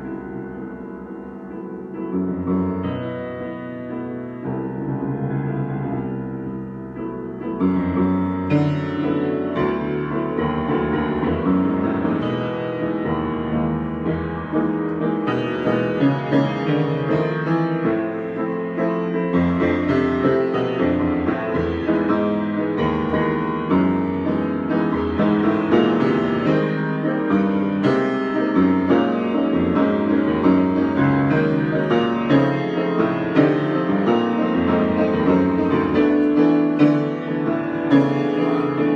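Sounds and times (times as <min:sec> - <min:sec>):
improvised piano chords: 0:00.0 - 0:38.9.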